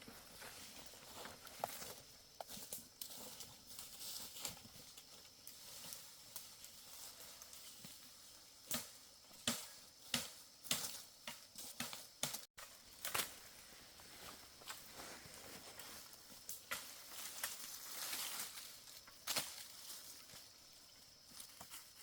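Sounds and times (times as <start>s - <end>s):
dry twigs and leaves crackling: 0.0s - 22.0s.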